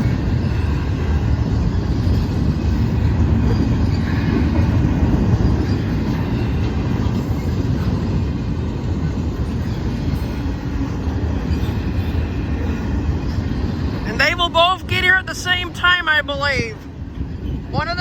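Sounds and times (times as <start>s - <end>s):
passing train rumble: 0.0s - 18.0s.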